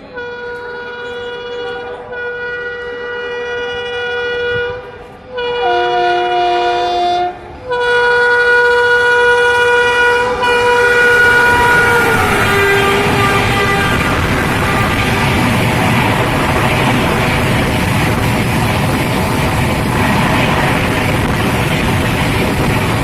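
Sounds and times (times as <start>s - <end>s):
rushing noise of fast train: 0.0s - 23.0s
train horn blasts: 0.1s - 16.3s.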